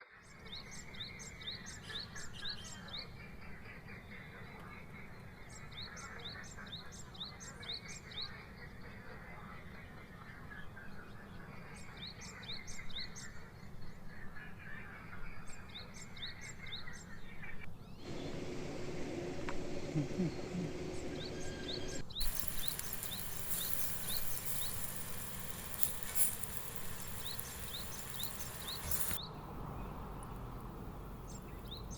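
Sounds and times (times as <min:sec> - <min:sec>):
songbird chirping: 0:00.0 - 0:31.9
outdoor background hiss: 0:17.7 - 0:31.9.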